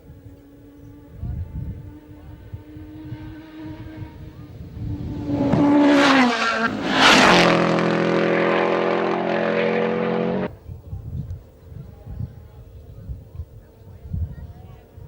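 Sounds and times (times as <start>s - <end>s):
rally car engine revving: 0.7s - 10.5s.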